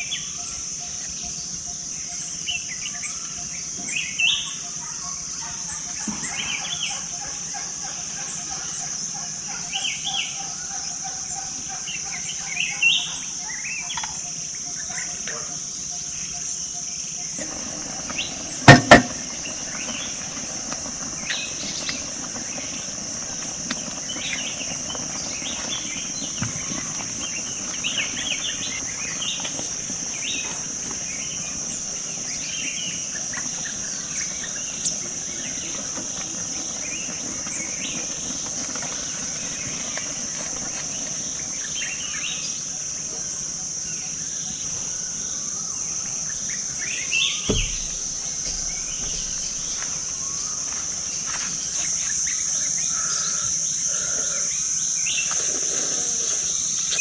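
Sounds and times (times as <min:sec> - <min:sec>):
bird chirps: 0:00.0 - 0:42.8, 0:43.9 - 0:54.4
high-pitched insect drone: 0:00.0 - 0:57.0
sharp knocks: 0:18.7 - 0:19.2, 0:47.4 - 0:50.2.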